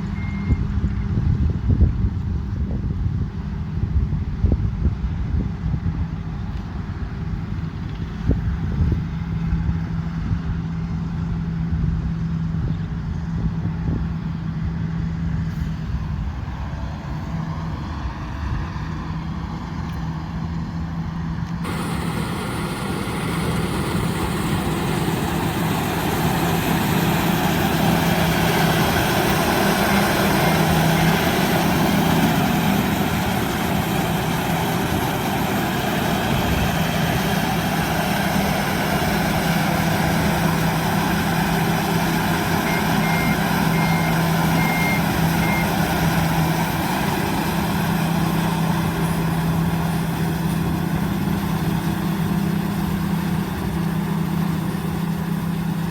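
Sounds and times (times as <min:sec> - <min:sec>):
diesel engine humming under load: 0:00.0 - 0:55.9
bright loud machine noise: 0:21.6 - 0:55.8.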